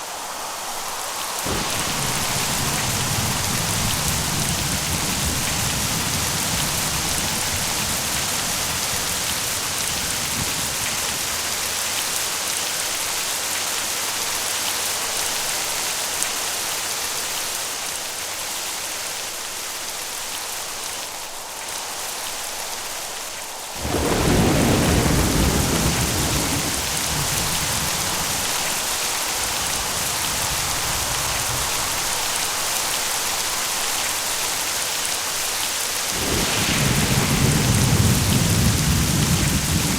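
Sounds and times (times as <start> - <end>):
heavy rain hissing: 0.0 - 39.9
thunder crack and rumble: 1.4 - 12.2, 23.8 - 32.4, 36.1 - 39.9.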